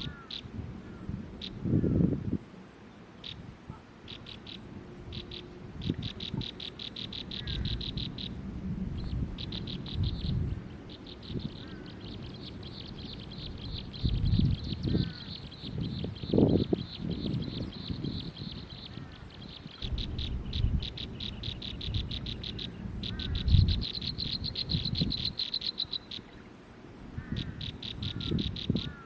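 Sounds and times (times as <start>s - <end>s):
nestling birds begging chirps: 2.9s - 3.4s, 4.0s - 29.0s
low rumbling noise: 4.4s - 25.4s.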